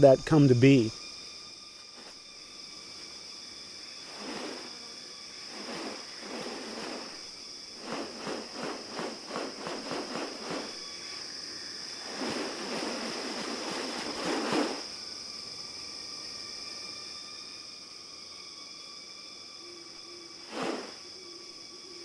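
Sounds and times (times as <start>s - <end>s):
high-pitched insect drone: 0.0s - 22.0s
rustling: 4.0s - 4.8s, 5.5s - 7.2s, 7.8s - 10.8s, 12.0s - 14.9s.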